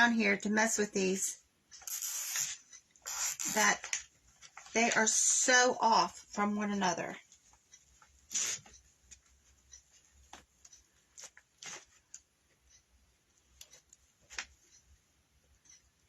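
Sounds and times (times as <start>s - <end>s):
clicks and rustles of wire: 1.7s - 4.8s, 7.2s - 12.6s, 13.4s - 14.8s.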